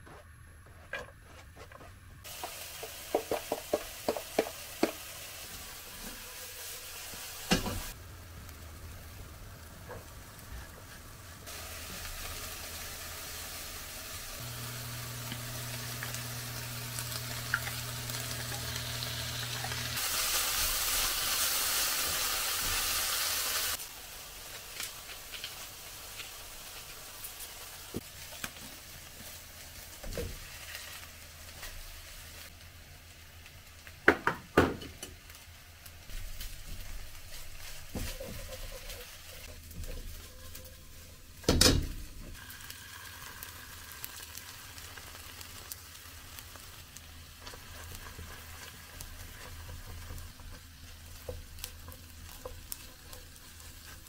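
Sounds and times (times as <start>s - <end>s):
spatula tapping and scraping: 0.1s - 5.0s, 47.5s - 54.0s
vegetables sizzling in a frying pan: 2.2s - 54.0s.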